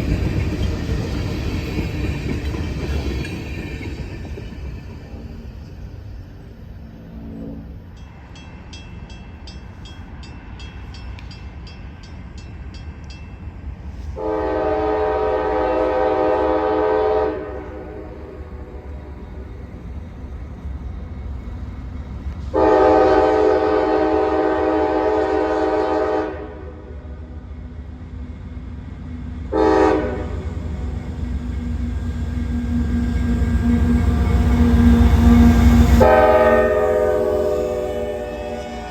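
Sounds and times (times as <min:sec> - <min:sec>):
train rumbling: 0:00.0 - 0:38.9
train air horn blasts: 0:06.9 - 0:08.0, 0:14.0 - 0:18.8, 0:22.5 - 0:27.0, 0:29.5 - 0:30.6, 0:34.6 - 0:38.9.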